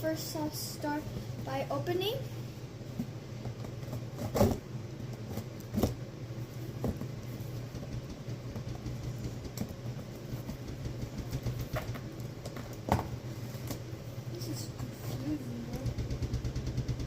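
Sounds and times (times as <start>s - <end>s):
steady low hum: 0.0s - 17.0s
knocks and clicks: 7.7s - 12.9s, 15.7s - 17.0s.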